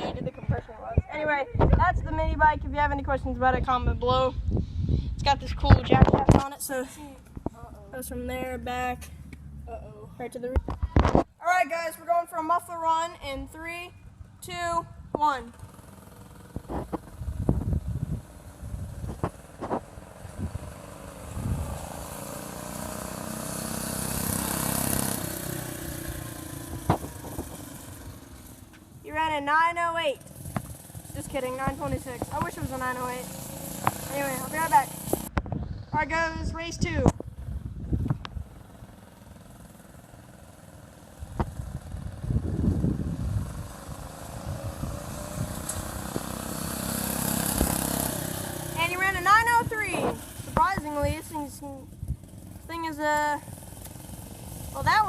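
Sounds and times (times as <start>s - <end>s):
go-kart engine running flat out: 15.5s - 28.8s, 30.2s - 35.3s, 37.2s - 55.0s.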